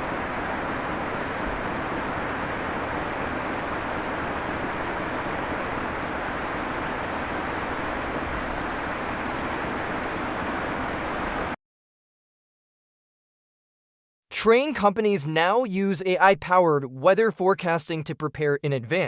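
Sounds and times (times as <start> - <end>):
steady rushing noise: 0.0 - 11.6.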